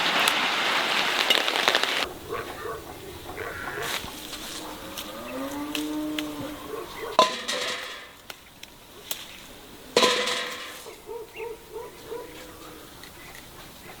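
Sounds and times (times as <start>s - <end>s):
pots clanking together: 7.1s - 8.3s, 10.0s - 11.0s.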